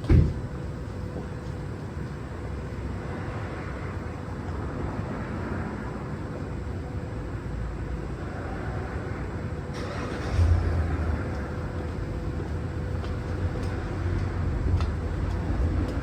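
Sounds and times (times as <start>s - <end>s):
car passing with tyre hiss: 8.3s - 11.3s.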